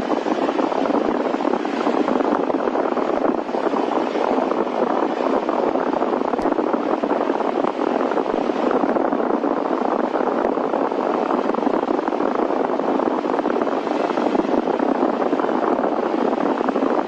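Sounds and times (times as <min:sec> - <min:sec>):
piston engine cabin drone: 0:00.0 - 0:17.0.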